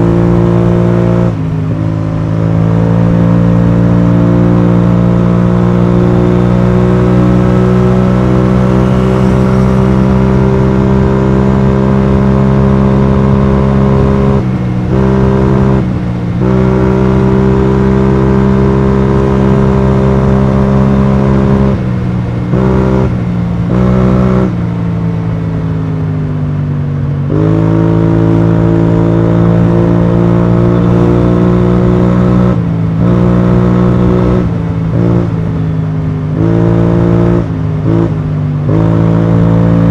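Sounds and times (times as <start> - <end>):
scooter engine running: 8.0 - 13.4.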